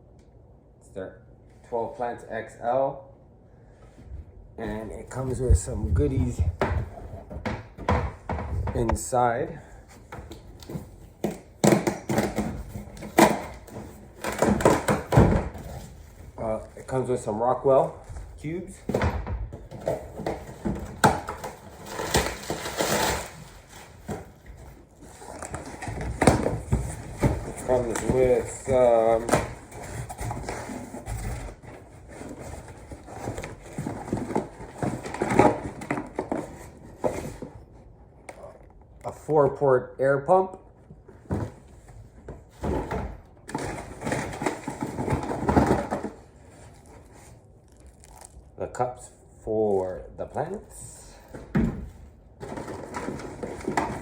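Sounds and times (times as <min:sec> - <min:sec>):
packaging crinkling and rustling: 0:19.7 - 0:37.6, 0:43.4 - 0:48.5
packaging rustling: 0:43.4 - 0:48.5.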